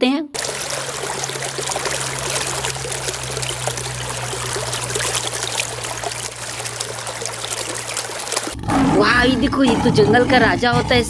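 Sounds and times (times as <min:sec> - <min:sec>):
water pouring and trickling: 0:00.4 - 0:08.6.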